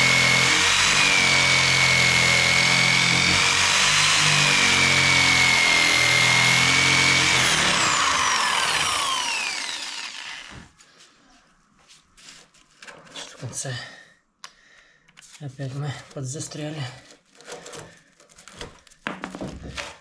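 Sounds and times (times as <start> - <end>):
electric jigsaw sawing wood: 0.0 - 10.7.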